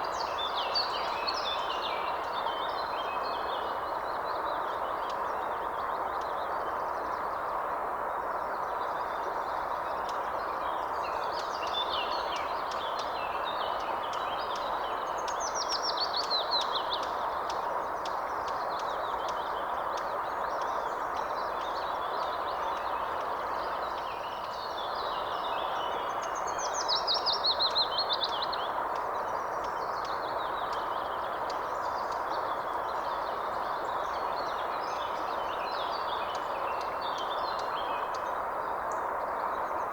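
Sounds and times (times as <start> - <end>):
songbirds singing and chirping: 8.5 - 39.9.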